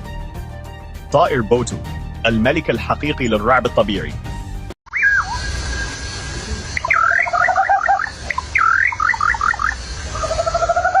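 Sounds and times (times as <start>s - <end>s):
bird whistling calls: 4.9s - 11.0s.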